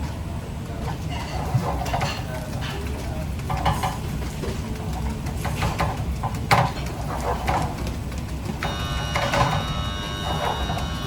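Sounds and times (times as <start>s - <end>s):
steady low hum: 0.0s - 11.0s
cookware and utensils clinking: 0.9s - 7.8s.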